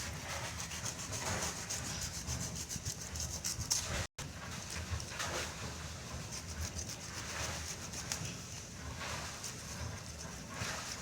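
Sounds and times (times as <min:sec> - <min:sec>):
knife sawing through banana stalk: 0:00.0 - 0:04.0.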